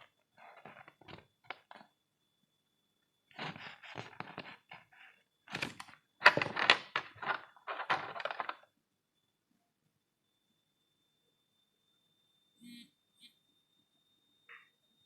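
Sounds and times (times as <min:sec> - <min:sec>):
parcel unboxing knocks and rustles: 0:00.4 - 0:01.8, 0:03.3 - 0:08.6.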